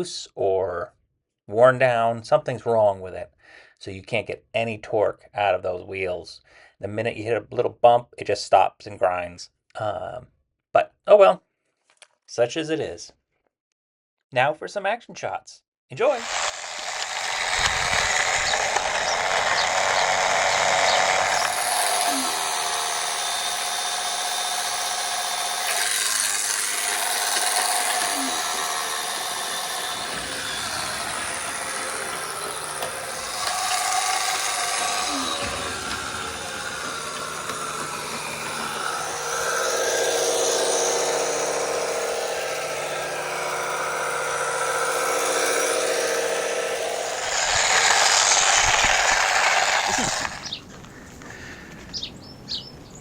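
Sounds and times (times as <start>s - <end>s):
toy truck electric motor whining: 16.1s - 51.8s.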